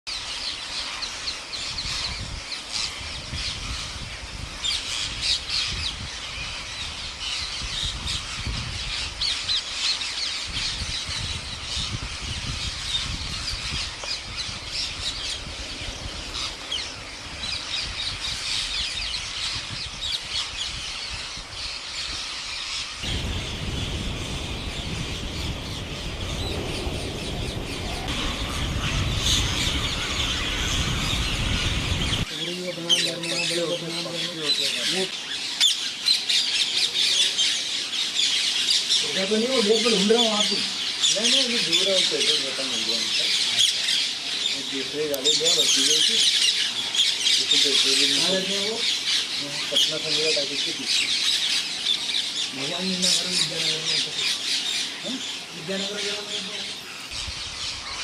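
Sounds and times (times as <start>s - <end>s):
parrots squawking and screeching: 0.2s - 58.0s
low rumble: 23.1s - 32.3s.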